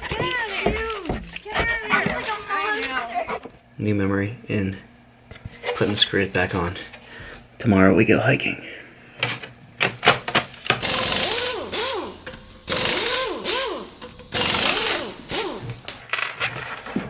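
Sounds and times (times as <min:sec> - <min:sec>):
screws being driven: 0:10.6 - 0:17.0.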